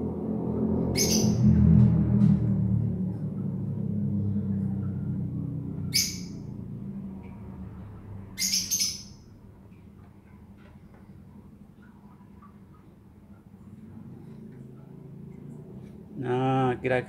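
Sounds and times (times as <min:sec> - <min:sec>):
low steady hum: 0:00.0 - 0:17.0
bird chirping: 0:01.0 - 0:01.6, 0:05.9 - 0:06.5, 0:08.4 - 0:09.3.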